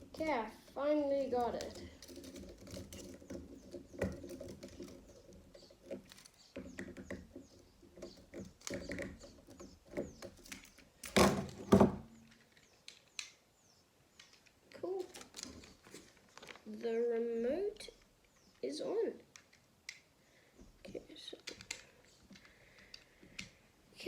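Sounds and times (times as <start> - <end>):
rustling knocks: 0.0 - 12.4
plastic parts clicking and rattling: 0.0 - 13.4, 14.1 - 23.8.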